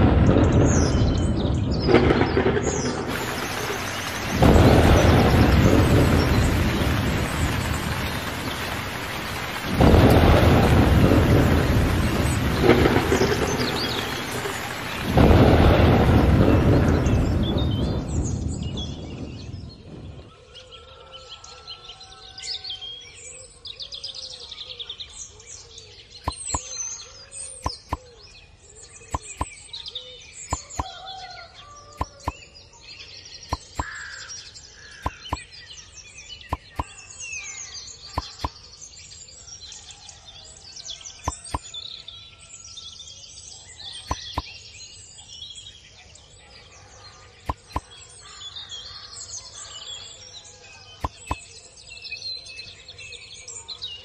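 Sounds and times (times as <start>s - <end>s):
birds chirping and singing: 0.0s - 54.0s.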